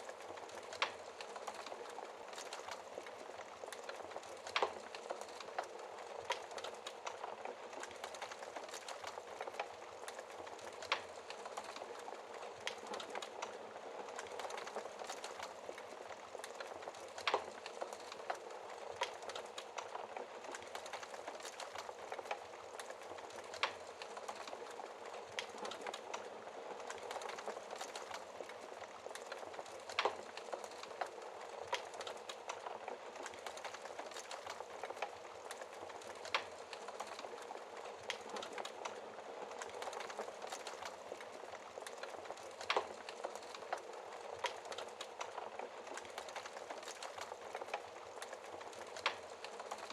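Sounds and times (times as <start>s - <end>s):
fire popping: 0.0s - 49.9s
wood fire crackling: 0.0s - 49.9s.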